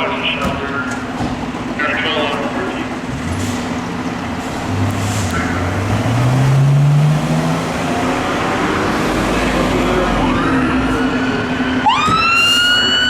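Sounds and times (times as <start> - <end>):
heavy vehicle engine accelerating: 0.0 - 13.0
siren wailing: 8.5 - 13.0.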